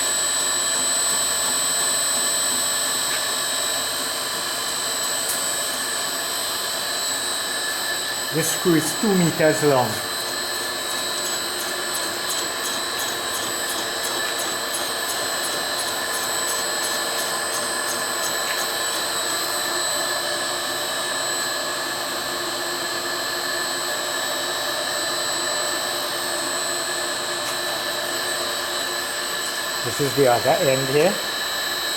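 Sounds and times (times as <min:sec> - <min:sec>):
lathe whining: 0:00.0 - 0:21.5
cutter turning steel: 0:07.4 - 0:19.7.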